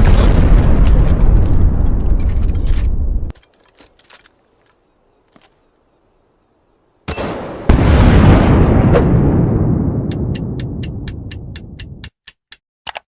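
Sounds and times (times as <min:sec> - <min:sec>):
loud explosion-like blast: 0:00.0 - 0:03.3, 0:07.7 - 0:10.6.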